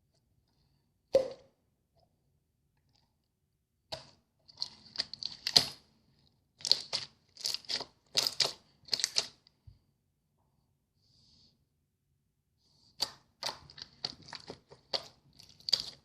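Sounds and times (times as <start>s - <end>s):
slime squished by hand: 6.6s - 9.4s, 13.0s - 16.0s.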